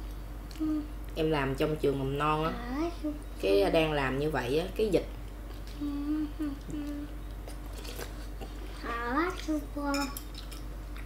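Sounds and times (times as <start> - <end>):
chewing: 6.6 - 8.8, 10.2 - 11.0.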